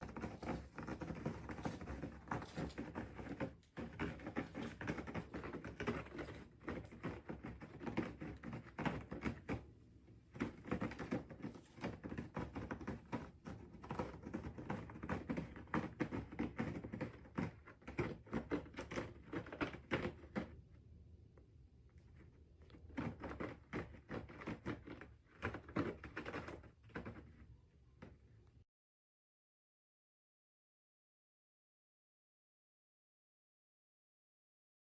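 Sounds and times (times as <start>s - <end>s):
cat scratching claws on scratcher: 0.0s - 20.6s, 22.1s - 27.4s.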